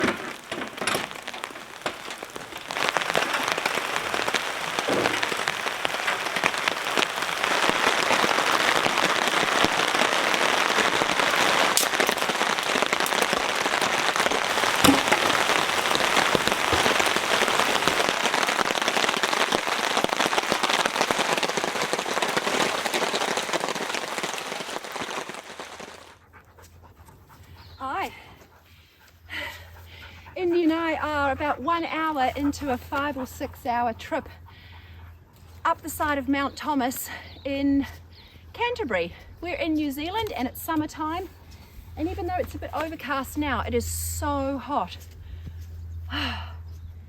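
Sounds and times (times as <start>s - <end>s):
heavy rain falling: 0.0s - 26.1s.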